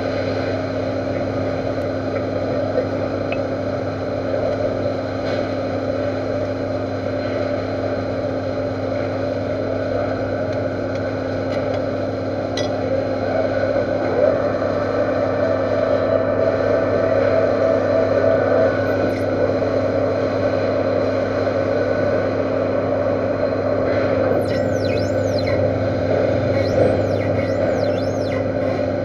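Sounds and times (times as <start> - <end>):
metal lathe running: 24.2 - 29.0.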